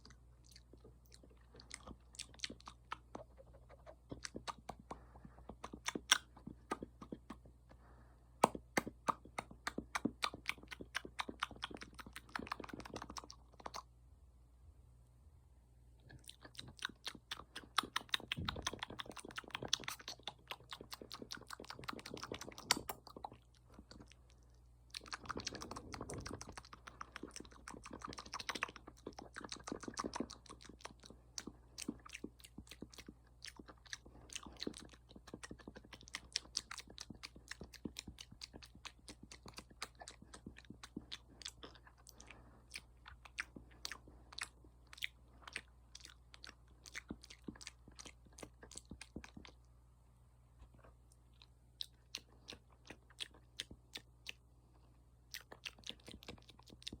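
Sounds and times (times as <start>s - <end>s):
wet mouth clicks and lip smacks: 0.0s - 7.5s, 8.4s - 13.9s, 16.1s - 49.7s, 50.6s - 54.4s, 55.3s - 57.0s.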